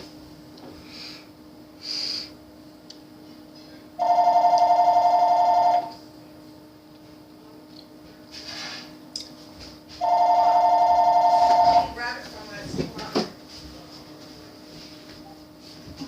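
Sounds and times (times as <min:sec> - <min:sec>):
phone ringing two-tone trill: 0:04.0 - 0:06.0, 0:10.0 - 0:12.0.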